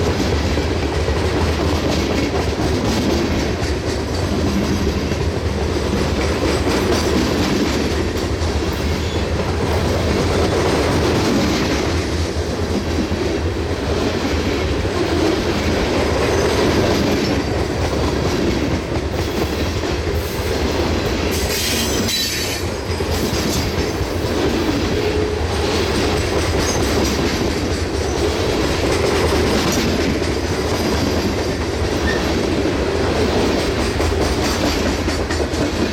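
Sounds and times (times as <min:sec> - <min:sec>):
freight train rolling past: 0:00.0 - 0:35.9
wheels clicking over rail joints: 0:14.0 - 0:35.9.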